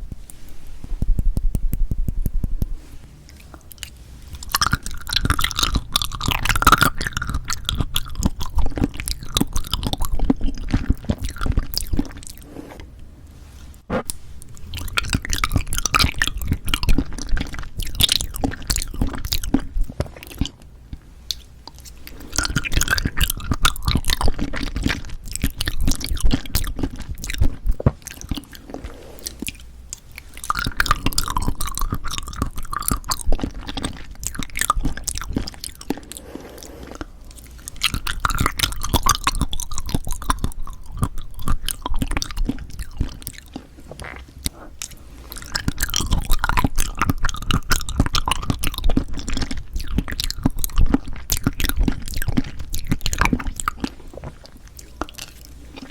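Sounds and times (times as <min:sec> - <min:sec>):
wet clicky chewing: 0:00.0 - 0:12.4, 0:14.0 - 0:55.9.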